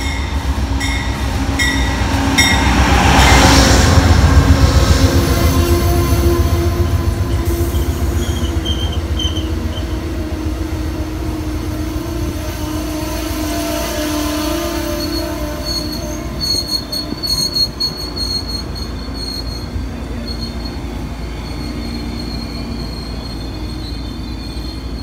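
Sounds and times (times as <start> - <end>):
train rumbling on track: 0.0 - 25.0
high wheel squeals: 7.3 - 10.0, 14.6 - 25.0.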